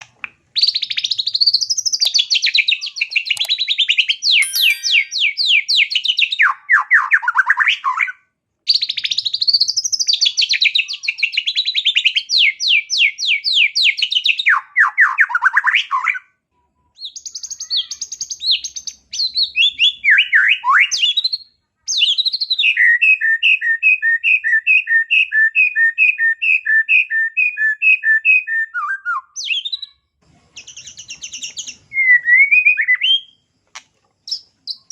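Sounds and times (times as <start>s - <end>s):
bird singing trills and whistles: 0.6s - 16.2s, 17.0s - 30.0s, 30.6s - 33.4s, 34.3s - 34.9s
bird two-note chatters: 4.4s - 5.2s.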